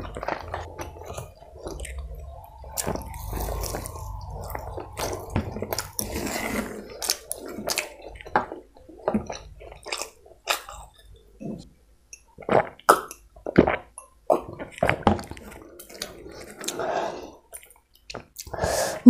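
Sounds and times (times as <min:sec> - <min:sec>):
wet chewing and mouth smacks: 0:06.9 - 0:11.1.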